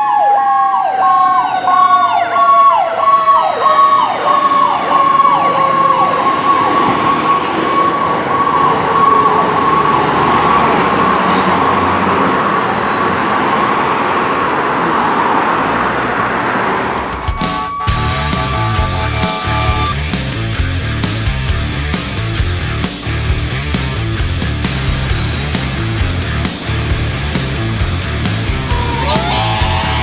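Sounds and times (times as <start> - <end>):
fire truck sirens wailing: 0.0 - 13.7, 16.2 - 21.3, 28.4 - 30.0
engine and road noise: 0.1 - 30.0.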